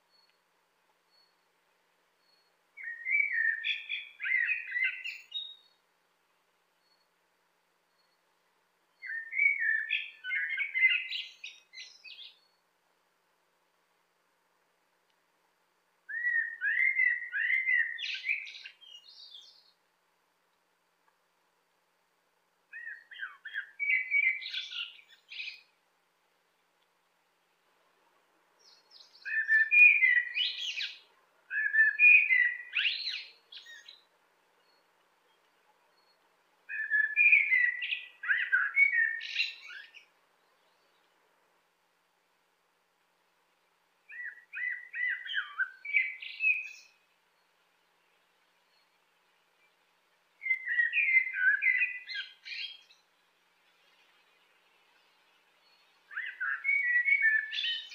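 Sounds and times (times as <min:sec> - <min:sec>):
blackbird singing: 0:02.2 - 0:05.8, 0:09.0 - 0:12.6, 0:16.1 - 0:19.8, 0:22.7 - 0:25.8, 0:28.6 - 0:41.1, 0:44.1 - 0:47.5, 0:49.6 - 0:53.2, 0:54.9 - 0:57.9.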